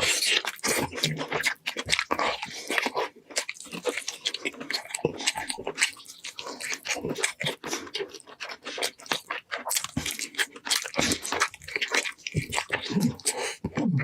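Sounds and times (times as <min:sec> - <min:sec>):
chewing and crunching: 0:00.0 - 0:14.0
wet mouth sounds: 0:00.0 - 0:14.0.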